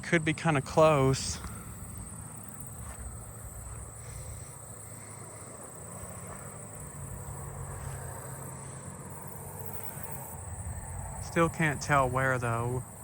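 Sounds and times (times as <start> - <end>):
crickets trilling: 0.0 - 13.0
low hum of distant traffic: 0.0 - 13.0.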